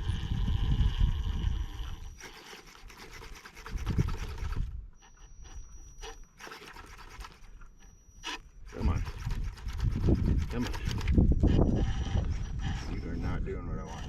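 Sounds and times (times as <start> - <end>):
wind buffeting microphone: 0.0 - 2.2, 3.6 - 4.9, 8.7 - 14.0.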